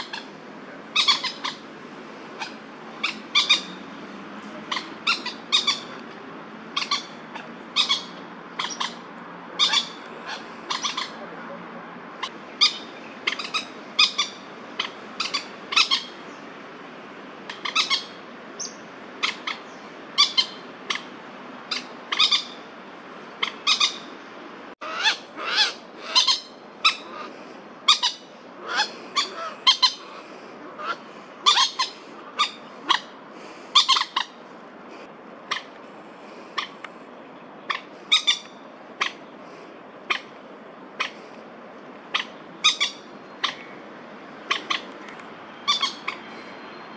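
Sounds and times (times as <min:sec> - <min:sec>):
moorhens giving sharp alarm calls: 0:00.0 - 0:01.6, 0:02.3 - 0:03.8, 0:04.6 - 0:06.0, 0:06.7 - 0:11.2, 0:12.2 - 0:16.2, 0:24.8 - 0:34.4, 0:35.4 - 0:35.8, 0:36.5 - 0:36.8, 0:37.6 - 0:39.3, 0:40.0 - 0:41.3, 0:42.0 - 0:43.8, 0:44.4 - 0:46.3.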